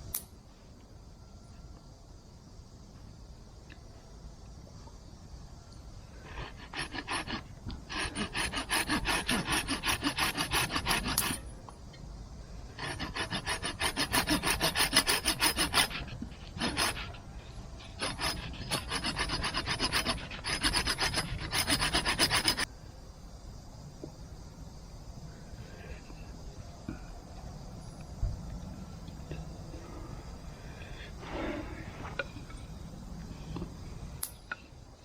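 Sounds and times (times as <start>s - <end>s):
hand tool rasping wood: 6.2s - 11.5s, 12.8s - 22.7s.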